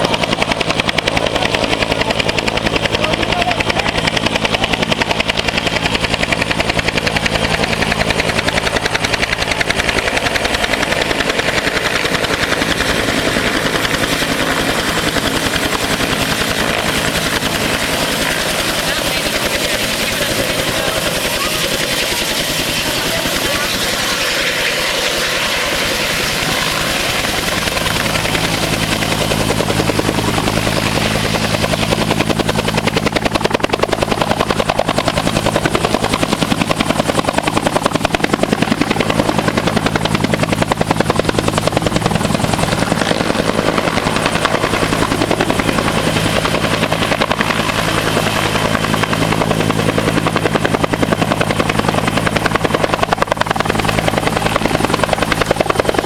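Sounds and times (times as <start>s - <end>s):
helicopter rotor blades beating: 0.0s - 56.0s.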